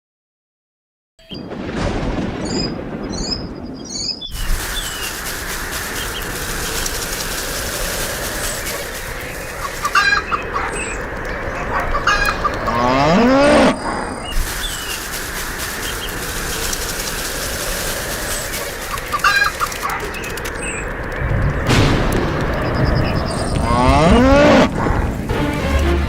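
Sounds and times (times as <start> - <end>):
bird chirps: 2.4 - 5.1
background hiss: 4.3 - 12.6, 14.2 - 20.8.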